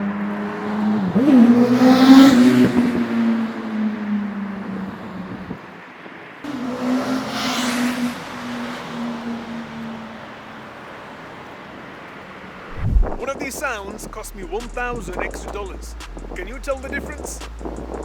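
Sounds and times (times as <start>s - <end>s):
motorcycle riding past: 0.0s - 5.6s, 6.4s - 11.6s.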